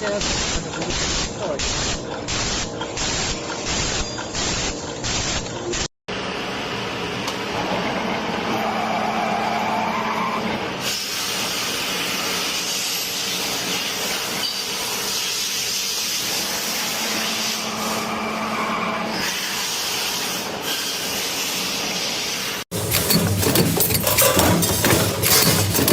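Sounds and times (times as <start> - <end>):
factory machinery hissing: 10.7 - 25.9.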